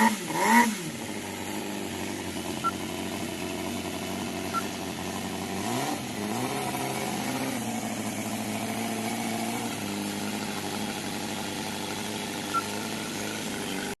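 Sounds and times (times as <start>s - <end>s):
model engine running: 0.0s - 14.0s.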